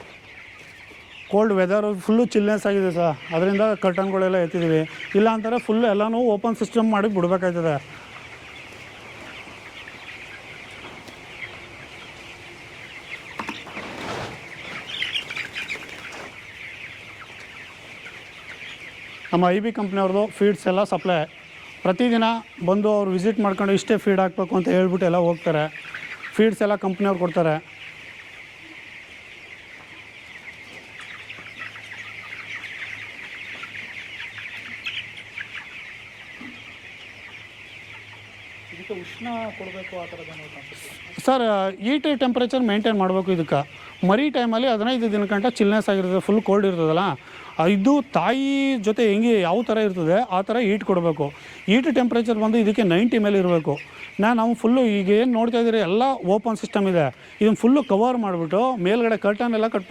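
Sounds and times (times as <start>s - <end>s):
chicks peeping and chirping: 0.0s - 59.9s
rustling scuffle: 13.4s - 16.5s.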